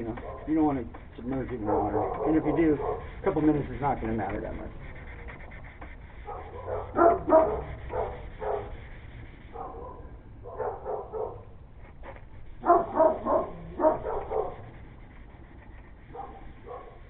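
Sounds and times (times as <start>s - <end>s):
dog barking: 0.1s - 0.6s, 1.5s - 3.2s, 6.2s - 8.8s, 9.5s - 11.5s, 12.6s - 14.8s, 16.1s - 17.0s.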